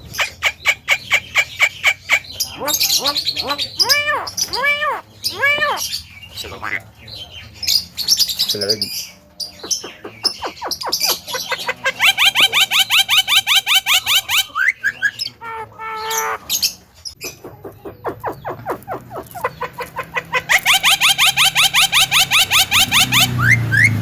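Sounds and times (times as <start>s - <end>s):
myna calling loudly: 2.6s - 6.8s.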